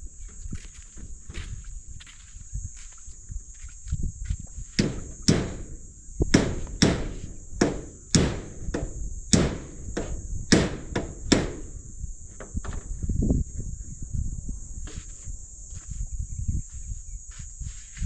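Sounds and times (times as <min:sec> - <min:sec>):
crickets chirring: 0:00.0 - 0:18.0
hammer strikes: 0:04.8 - 0:11.7.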